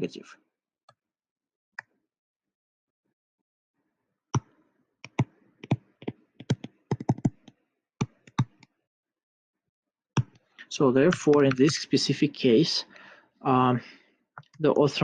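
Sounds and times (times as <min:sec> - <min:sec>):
computer keyboard typing: 0:06.4 - 0:08.6, 0:11.1 - 0:11.8.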